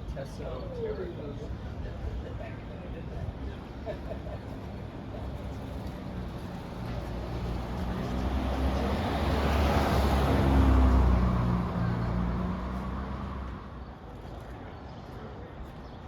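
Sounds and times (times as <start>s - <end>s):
vehicle driving past: 7.0s - 13.8s.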